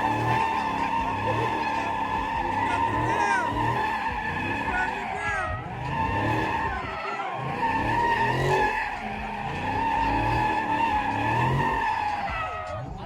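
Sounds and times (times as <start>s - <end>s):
car engine revving: 0.0s - 13.0s
tires squealing: 0.0s - 13.0s.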